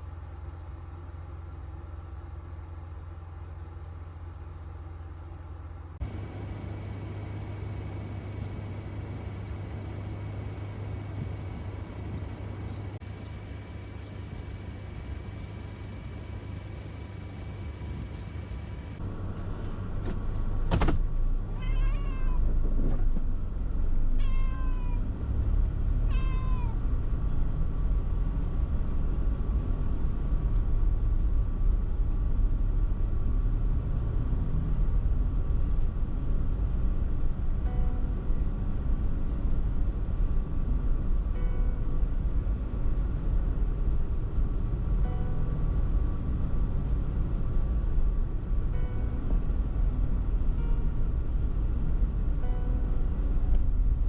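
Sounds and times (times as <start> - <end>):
low vehicle rumble: 0.0 - 54.0
cat meowing: 21.6 - 22.5, 24.2 - 25.0, 26.0 - 26.8.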